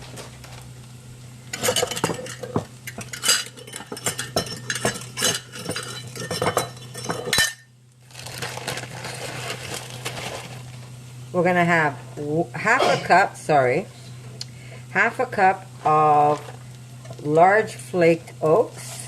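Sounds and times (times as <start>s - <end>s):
utensils clinking against bowl: 1.5s - 7.7s.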